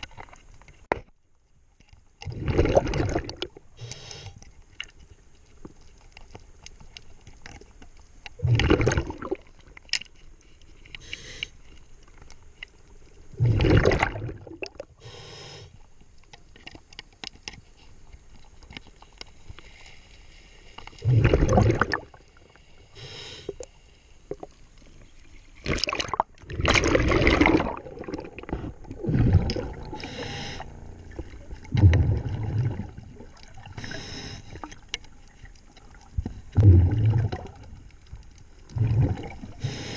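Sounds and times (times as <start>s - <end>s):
bubbles gurgling underwater: 2.2s - 3.6s, 8.4s - 9.5s, 13.3s - 14.8s, 21.0s - 22.3s, 25.6s - 34.9s, 35.8s - 37.9s, 38.6s - 39.9s
faint breaths: 3.8s - 4.5s, 10.4s - 12.0s, 15.0s - 16.0s, 18.9s - 21.0s, 22.2s - 25.2s, 28.5s - 31.5s, 32.1s - 34.9s, 39.5s - 39.9s.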